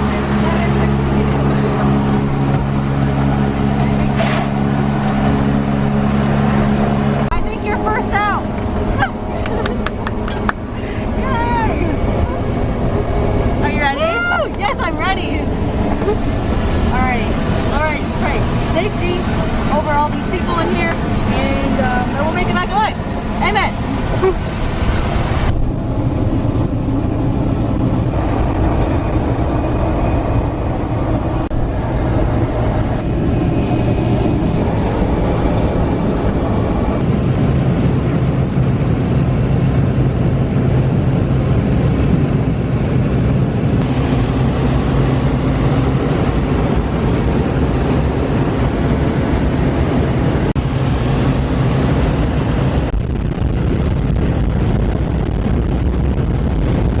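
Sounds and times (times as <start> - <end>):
plane engine drone in cabin: 0.0 - 57.0
thin high whine: 24.1 - 37.0.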